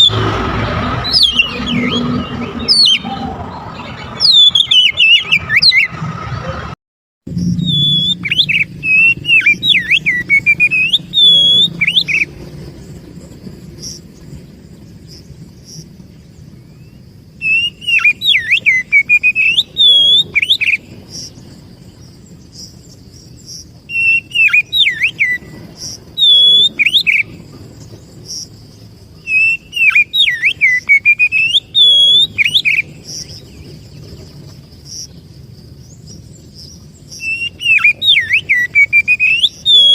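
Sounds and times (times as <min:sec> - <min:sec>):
bird singing whistled phrases: 0:00.0 - 0:00.2, 0:01.0 - 0:06.0, 0:07.4 - 0:12.3, 0:16.7 - 0:21.3, 0:23.8 - 0:27.4, 0:29.2 - 0:33.8, 0:37.0 - 0:39.9.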